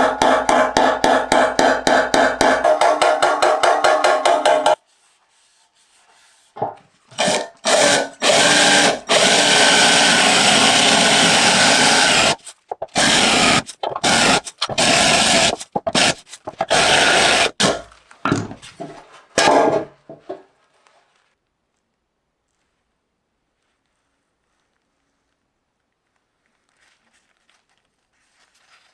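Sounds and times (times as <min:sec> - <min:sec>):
power tool running in bursts: 0:00.0 - 0:02.9, 0:07.1 - 0:17.8.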